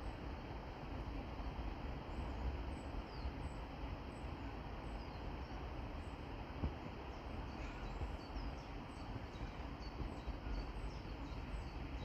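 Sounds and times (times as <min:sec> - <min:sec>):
small birds chirping: 0:07.1 - 0:12.0.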